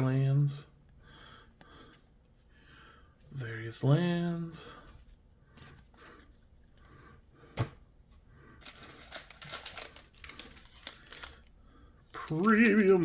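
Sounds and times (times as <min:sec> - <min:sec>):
crinkly rustling of card packaging: 0:08.6 - 0:13.0.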